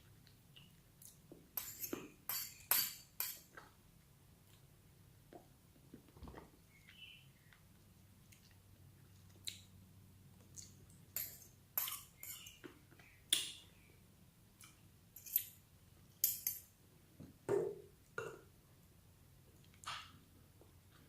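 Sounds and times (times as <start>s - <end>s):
cutlery clinking on plate: 1.6s - 3.5s, 11.2s - 12.6s, 15.2s - 15.6s, 16.2s - 16.7s.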